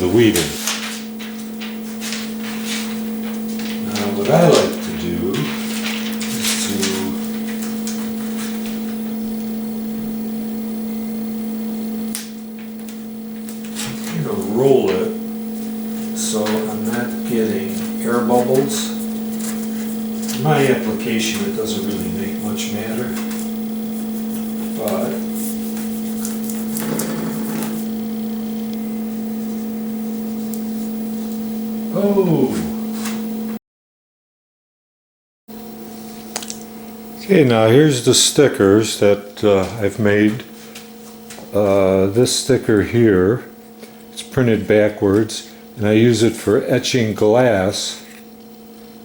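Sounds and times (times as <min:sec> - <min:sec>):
machine hum: 0:00.0 - 0:33.6.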